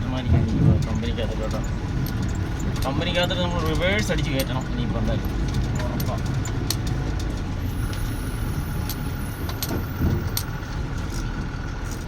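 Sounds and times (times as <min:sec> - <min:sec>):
diesel truck engine running: 0:00.0 - 0:12.0
rattling clicks: 0:00.3 - 0:08.1, 0:08.7 - 0:12.0.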